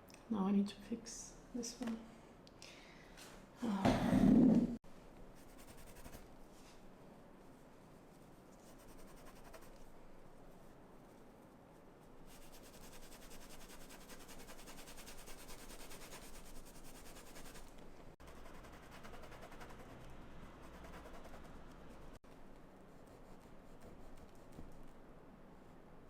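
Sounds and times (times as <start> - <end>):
paintbrush strokes scratching: 5.3 - 25.8.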